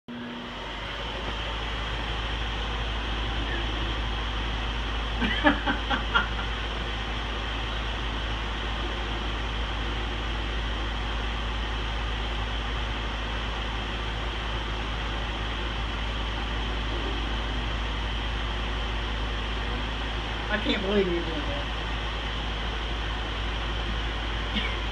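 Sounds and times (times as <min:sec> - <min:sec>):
microwave oven humming: 0:00.1 - 0:24.9.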